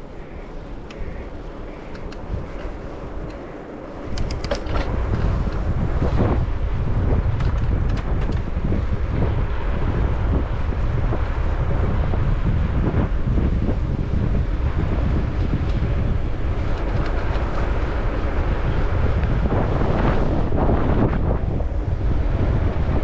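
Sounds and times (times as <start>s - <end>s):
wind buffeting microphone: 0.0s - 23.0s
light clicks: 0.8s - 4.9s.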